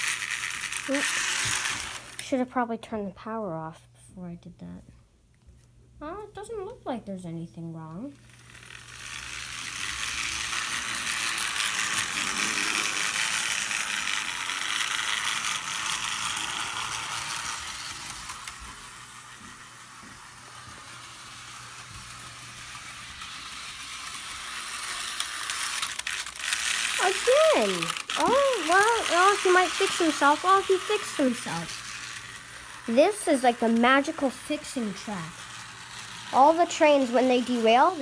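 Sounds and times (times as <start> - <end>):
model train motor whirring: 0.0 - 2.4, 8.0 - 38.0
wheels clicking over rails: 8.3 - 38.0.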